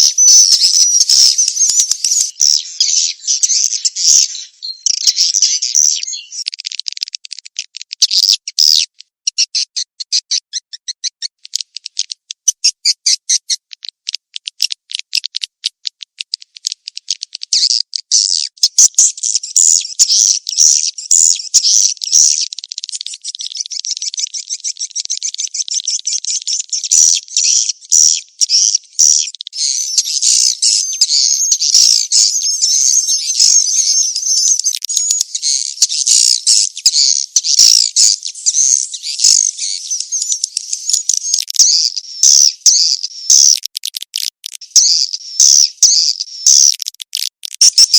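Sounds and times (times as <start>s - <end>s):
swiftlet chirps and twittering: 0.0s - 6.5s, 17.0s - 47.9s.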